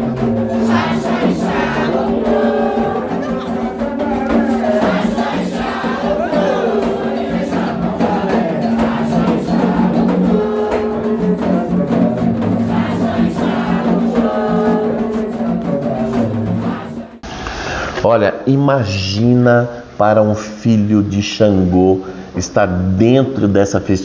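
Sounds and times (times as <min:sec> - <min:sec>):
drum beats: 0:00.0 - 0:17.2
group singing a chant: 0:00.0 - 0:17.3.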